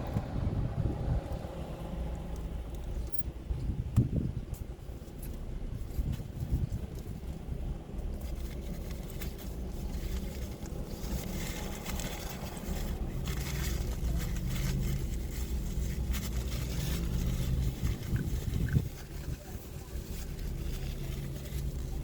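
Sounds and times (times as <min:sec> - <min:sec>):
low mechanical hum: 0:00.0 - 0:22.0
small clicks and rustles: 0:04.5 - 0:22.0.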